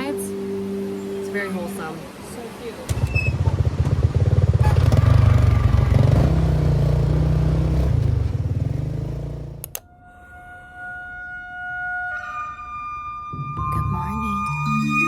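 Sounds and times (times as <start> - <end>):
soft music with held tones: 0.0 - 2.5.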